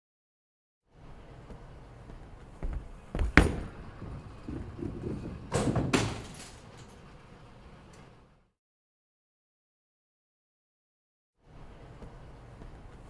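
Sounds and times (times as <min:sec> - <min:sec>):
sharp knocks and thumps: 0:02.6 - 0:04.8.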